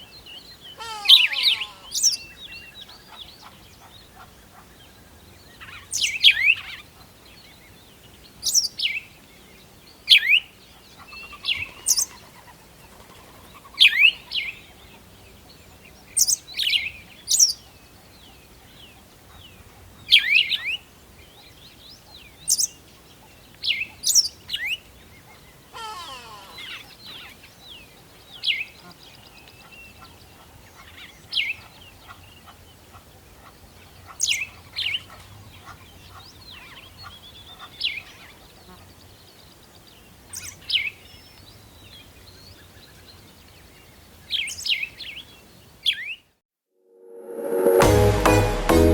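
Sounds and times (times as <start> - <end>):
rising rippling bird call: 0.8 - 2.2.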